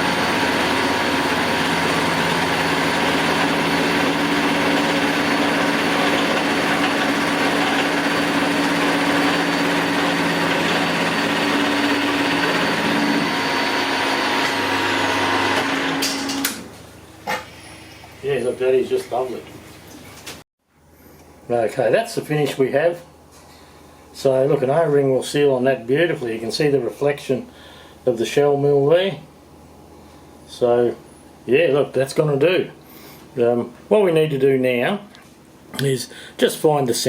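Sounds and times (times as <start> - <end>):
milling machine cutting metal: 0.0 - 16.6.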